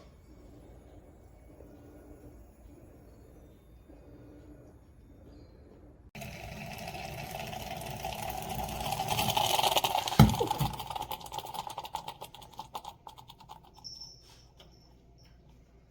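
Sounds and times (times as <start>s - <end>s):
moka pot hissing and sputtering: 6.2s - 14.0s.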